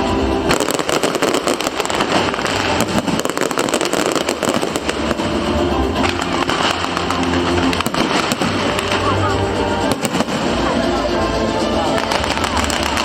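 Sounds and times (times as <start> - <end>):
fireworks bangs and crackles: 0.0 - 13.0
music playing: 0.0 - 13.0.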